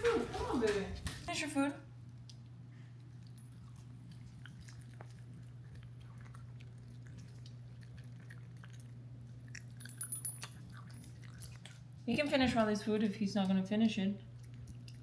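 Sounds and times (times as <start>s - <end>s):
steady low hum: 0.0s - 15.0s
dog chewing crunches: 2.2s - 12.1s, 14.3s - 15.0s.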